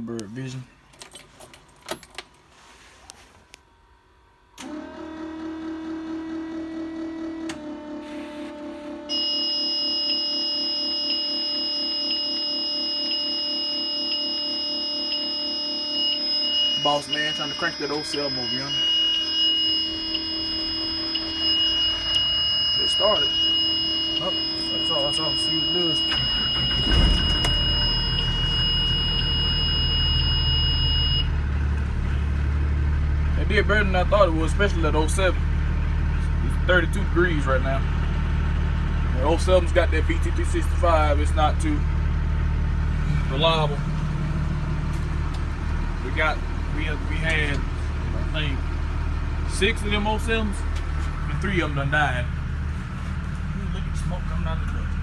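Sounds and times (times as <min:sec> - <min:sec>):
steady warning buzzer: 0:07.4 - 0:32.3
high-pitched pulsing alarm tone: 0:09.1 - 0:32.2
bus engine idling: 0:16.9 - 0:55.0.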